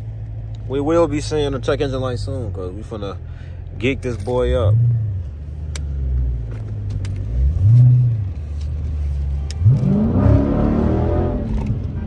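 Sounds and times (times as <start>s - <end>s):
car engine accelerating: 4.6s - 12.0s
car engine revving: 4.6s - 12.0s.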